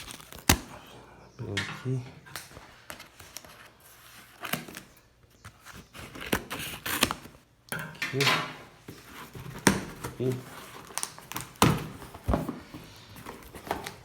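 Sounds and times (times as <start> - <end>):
packaging tearing and rustling: 0.0 - 0.8, 5.6 - 7.4, 9.0 - 14.0
cardboard box being opened: 8.9 - 14.0.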